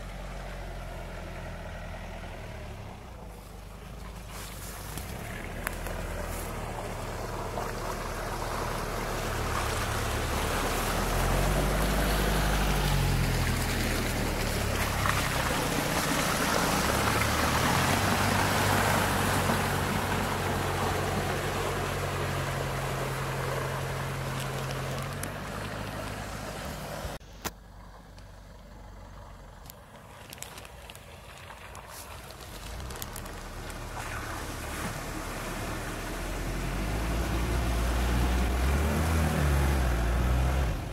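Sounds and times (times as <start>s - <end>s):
van engine running: 0.0s - 30.6s
tyre and road noise: 0.0s - 40.9s.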